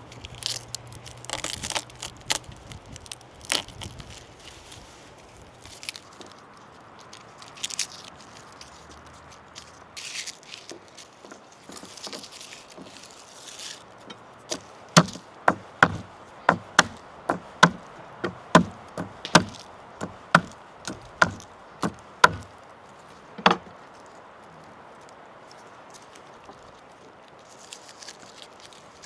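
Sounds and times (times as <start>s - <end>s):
light rustling: 0.0s - 29.0s
knife chopping on wooden board: 14.5s - 22.5s.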